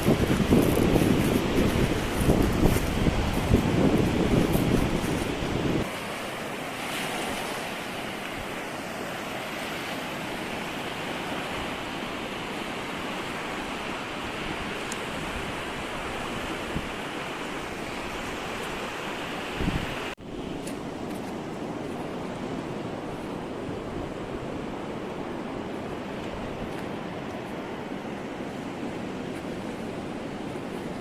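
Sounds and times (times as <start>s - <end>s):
wind on microphone: 0.0s - 5.9s, 19.5s - 20.6s
sea surf breaking: 0.0s - 31.0s.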